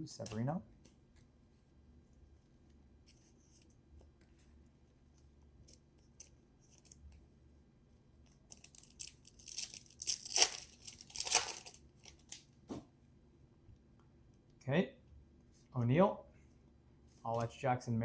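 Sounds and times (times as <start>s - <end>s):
foil wrapper tearing and crinkling: 8.5s - 12.4s.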